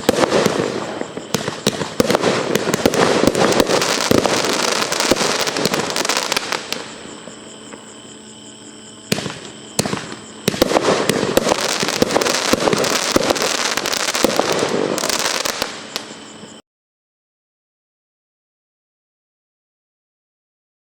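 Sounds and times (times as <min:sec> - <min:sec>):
sharp firework bangs: 0:00.0 - 0:07.1, 0:09.1 - 0:16.1
fireworks crackling and popping: 0:00.0 - 0:07.9, 0:09.1 - 0:16.2.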